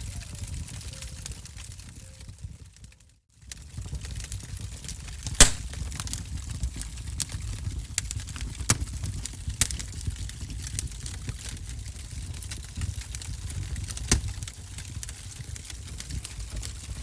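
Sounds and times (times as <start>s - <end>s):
fire crackling and popping: 2.8s - 17.0s
fire rumbling: 3.5s - 17.0s.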